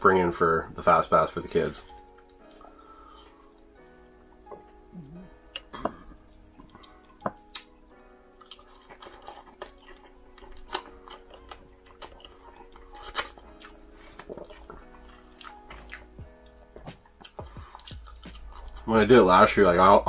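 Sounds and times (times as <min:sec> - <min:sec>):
close chewing with wet mouth sounds: 0:05.4 - 0:18.9.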